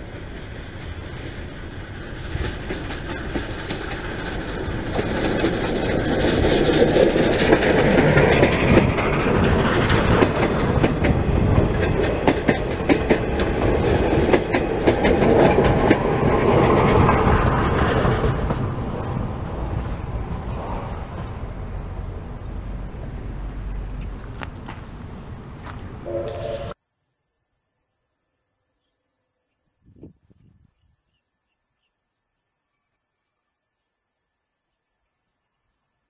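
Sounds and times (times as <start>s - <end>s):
steam train rumble: 0.0s - 26.8s
wheels clicking over rails: 0.0s - 26.8s.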